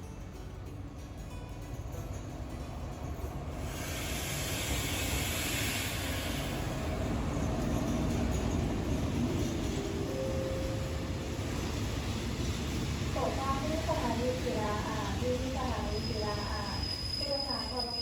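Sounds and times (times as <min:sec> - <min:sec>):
train rumbling on rails: 0:00.0 - 0:18.0
hiss: 0:03.6 - 0:07.0.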